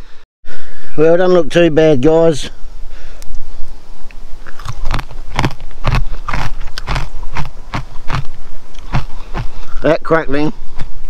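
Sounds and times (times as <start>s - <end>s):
crunchy chewing: 4.0s - 9.8s.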